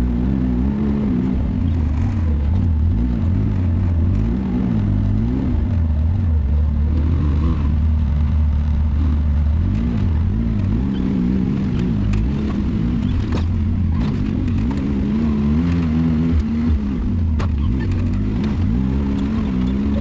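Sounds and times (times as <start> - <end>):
engine running at low revs: 0.0 - 20.0
sharp clicks and knocks: 11.7 - 15.0, 15.6 - 19.8.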